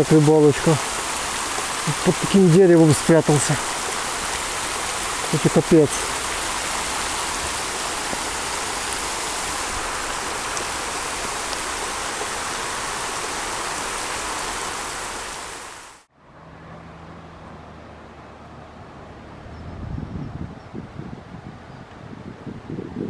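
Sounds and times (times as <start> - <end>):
heavy rain on water and leaves: 0.0 - 16.1.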